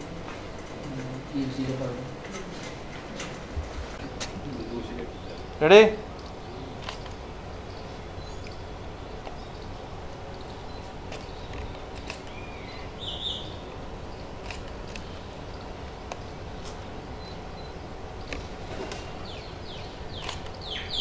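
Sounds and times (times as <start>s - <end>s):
bird chirping: 4.4s - 21.0s
rapid falling bird chirps: 4.4s - 21.0s.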